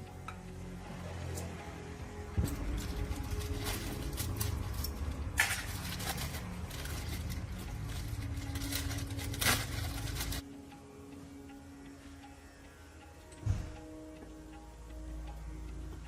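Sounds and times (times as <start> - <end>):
low mechanical rumble: 0.0 - 10.5.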